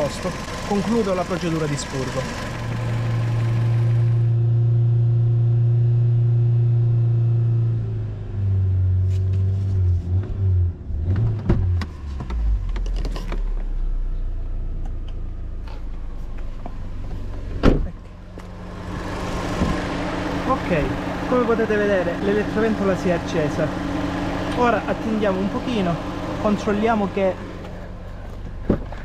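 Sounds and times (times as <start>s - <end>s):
car engine revving: 0.0s - 29.0s
loud thump: 17.6s - 18.0s, 19.6s - 19.8s.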